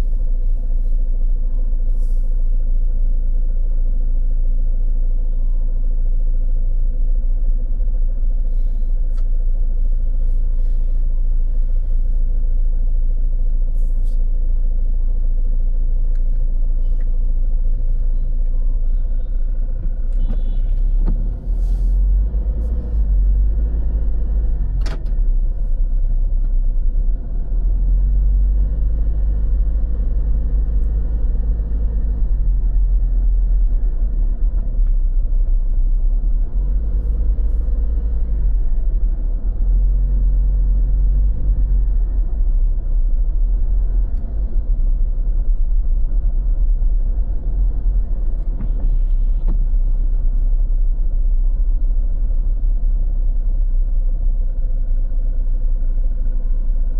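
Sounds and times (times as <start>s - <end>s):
low traffic rumble: 0.0s - 56.9s.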